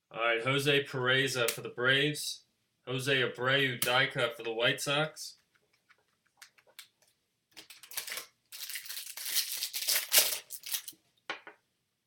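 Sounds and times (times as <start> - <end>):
foil wrapper crinkling and tearing: 7.6 - 11.0.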